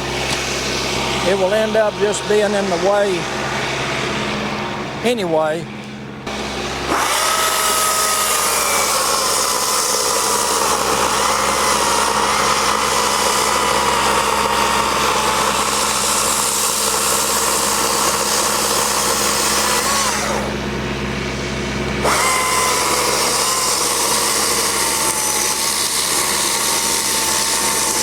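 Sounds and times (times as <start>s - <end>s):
chainsaw cutting log: 6.3s - 20.6s, 22.0s - 28.0s.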